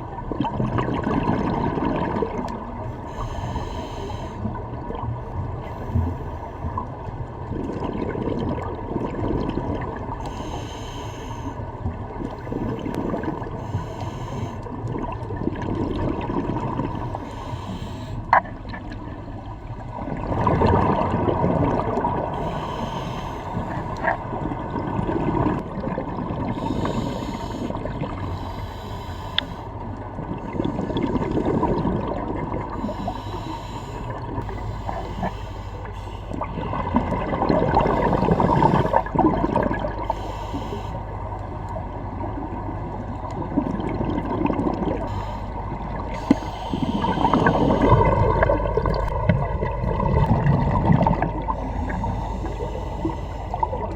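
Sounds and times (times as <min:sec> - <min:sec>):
exhaled bubbles gushing: 0:00.0 - 0:02.9, 0:04.4 - 0:10.3, 0:11.8 - 0:13.7, 0:14.6 - 0:17.5, 0:18.3 - 0:28.4, 0:29.8 - 0:33.2, 0:36.4 - 0:40.2, 0:41.8 - 0:53.9
breathing through a regulator: 0:01.9 - 0:06.9, 0:10.1 - 0:15.0, 0:15.9 - 0:19.4, 0:22.2 - 0:25.6, 0:26.2 - 0:42.3, 0:44.0 - 0:49.1, 0:51.3 - 0:53.9.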